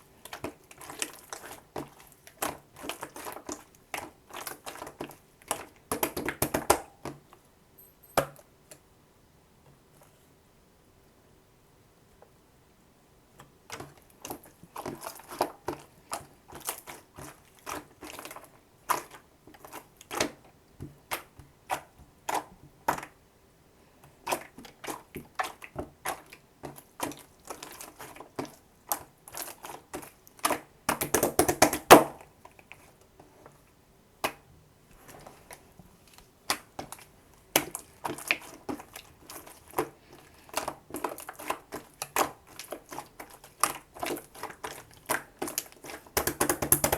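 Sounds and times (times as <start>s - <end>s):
slime squelching: 0.2s - 6.1s, 24.2s - 31.3s, 35.0s - 46.9s
slime clicking and popping: 46.1s - 46.9s.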